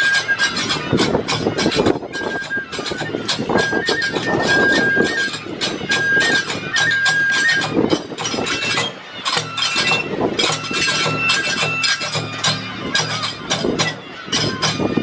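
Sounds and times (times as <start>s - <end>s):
bamboo flute: 0.0s - 15.0s
drum strikes: 0.0s - 15.0s
small hand cymbals: 0.0s - 15.0s.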